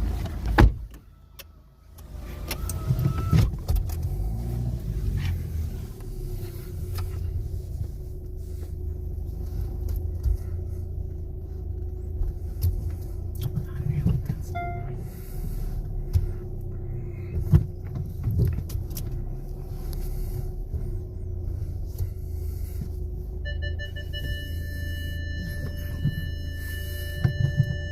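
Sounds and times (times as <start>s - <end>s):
car wash machinery rumbling: 2.0s - 27.9s
short electronic beep: 23.4s - 27.9s.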